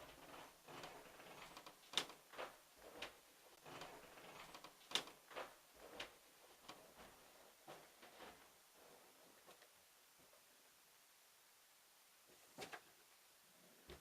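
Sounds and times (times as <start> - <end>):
faint irregular clicks: 0.0 - 7.1.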